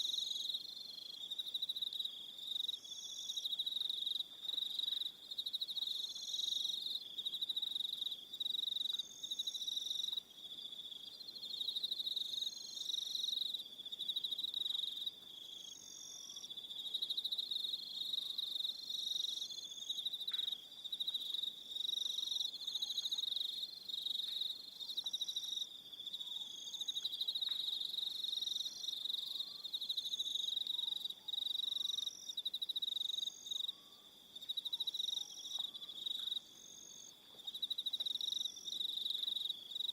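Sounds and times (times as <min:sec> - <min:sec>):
crickets trilling: 0:11.2 - 0:39.9.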